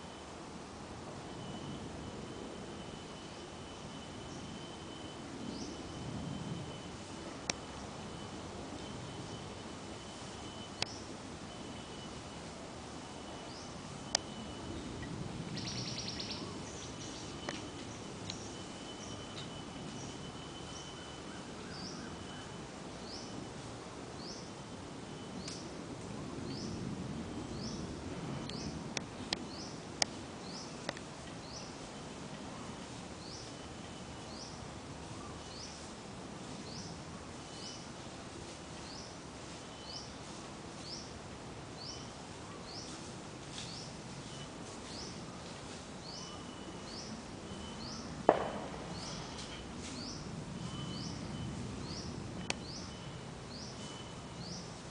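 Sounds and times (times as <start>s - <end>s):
low outdoor background hum: 0.0s - 54.9s
thin steady whine: 0.0s - 54.9s
bird chirping: 13.3s - 23.4s.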